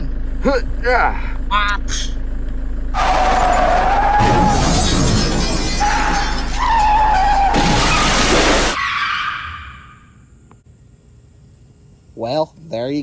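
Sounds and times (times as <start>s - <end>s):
car crash with shattering: 2.9s - 9.6s
tyres squealing: 2.9s - 10.2s.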